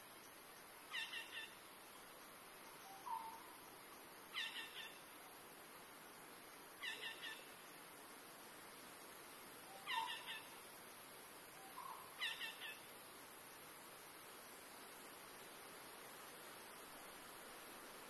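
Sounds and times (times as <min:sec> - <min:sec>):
steady high-pitched hiss: 0:00.0 - 0:18.0
forest bird calling: 0:00.9 - 0:01.7, 0:02.7 - 0:03.6, 0:04.3 - 0:05.2, 0:06.8 - 0:07.7, 0:09.7 - 0:10.7, 0:11.6 - 0:12.9.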